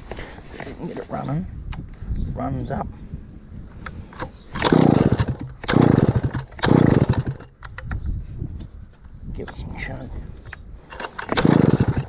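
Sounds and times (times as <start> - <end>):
chainsaw recoil starter pulls: 4.2 - 7.8, 10.8 - 12.0.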